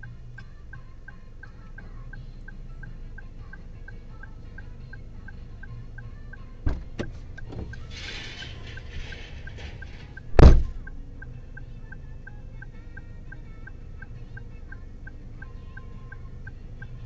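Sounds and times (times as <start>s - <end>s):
loud thump: 6.7s - 7.8s, 8.4s - 10.9s
sharp knocks: 6.7s - 7.8s, 8.4s - 10.9s.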